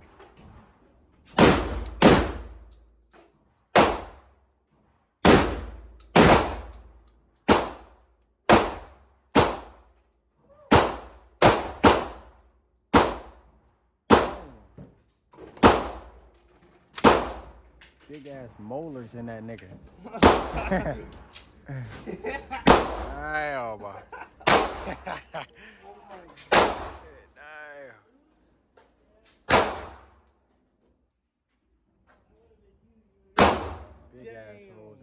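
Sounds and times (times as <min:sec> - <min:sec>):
shotgun shots: 0:01.3 - 0:02.7, 0:03.8 - 0:04.2, 0:05.2 - 0:06.9, 0:07.5 - 0:09.8, 0:10.7 - 0:13.5, 0:14.1 - 0:14.6, 0:15.6 - 0:16.2, 0:17.0 - 0:17.6, 0:20.2 - 0:21.0, 0:22.6 - 0:23.4, 0:24.4 - 0:25.3, 0:26.5 - 0:27.2, 0:29.5 - 0:30.2, 0:33.4 - 0:34.1.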